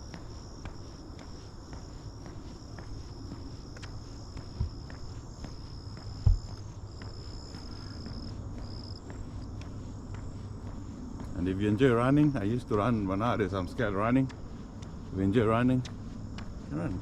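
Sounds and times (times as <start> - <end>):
soft low thumps: 0.0 - 11.4
crickets trilling: 0.0 - 17.0
faint footsteps on a path: 0.0 - 17.0.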